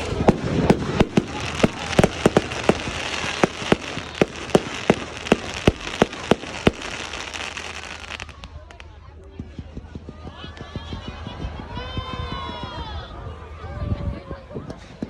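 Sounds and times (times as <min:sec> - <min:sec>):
fireworks crackling hiss: 0:00.0 - 0:09.0
fireworks bangs: 0:00.0 - 0:09.6.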